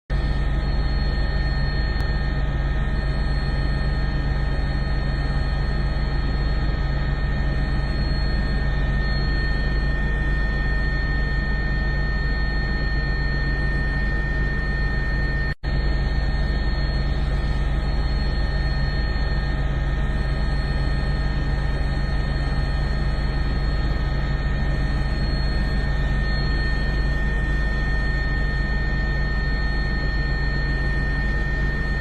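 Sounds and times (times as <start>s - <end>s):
aircraft cabin engine drone: 0.1s - 32.0s
steady whining tones: 0.1s - 32.0s.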